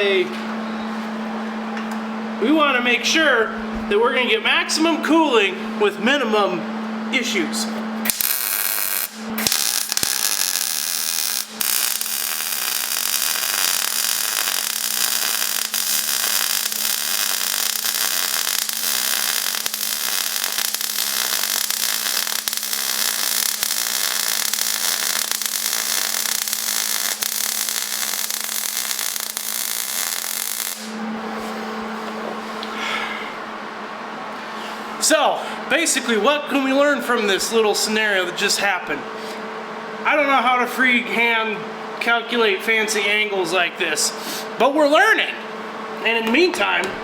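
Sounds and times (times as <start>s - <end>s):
steady low hum: 0.0s - 47.0s
welding arc crackling sizzle: 8.0s - 31.2s.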